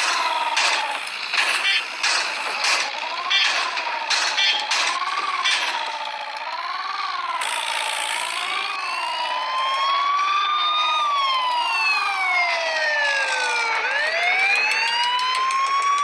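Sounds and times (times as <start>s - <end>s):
second siren rising and falling: 0.0s - 16.0s
siren warbling: 0.0s - 16.0s.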